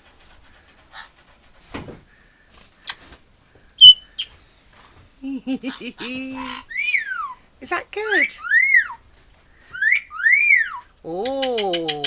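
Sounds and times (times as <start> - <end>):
parrot chirps and clicks: 10.2 - 12.0.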